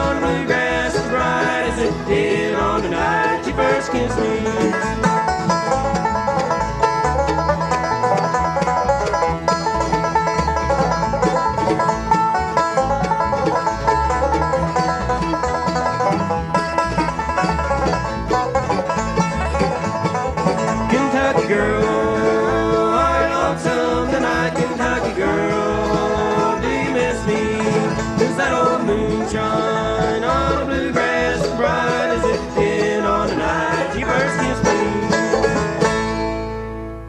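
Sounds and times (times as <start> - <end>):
bluegrass band playing: 0.0 - 37.0.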